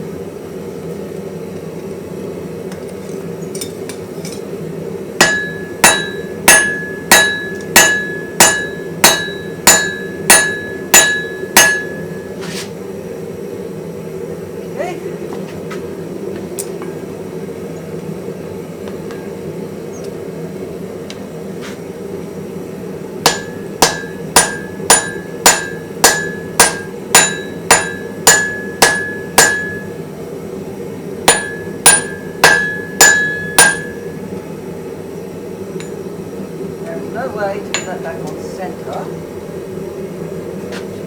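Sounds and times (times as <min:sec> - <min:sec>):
hammer ringing on anvil: 0:05.2 - 0:12.4, 0:23.2 - 0:30.0, 0:31.3 - 0:34.1, 0:37.7 - 0:38.0.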